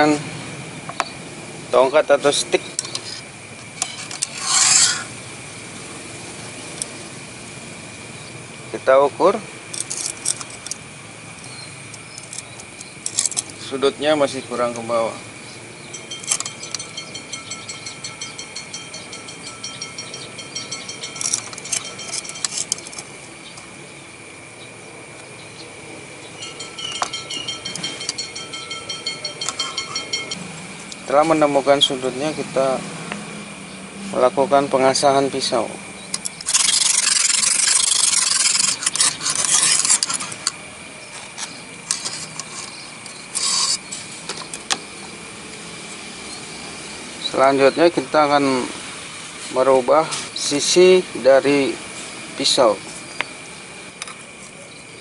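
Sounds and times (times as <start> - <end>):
insects droning: 0.0 - 55.0
sharpening stone rasping on knife: 4.3 - 5.0.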